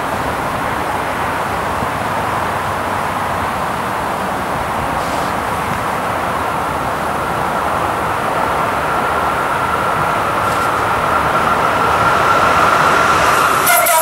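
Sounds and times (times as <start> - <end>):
electric train running noise: 0.0 - 14.0
high-pitched whine: 8.1 - 14.0.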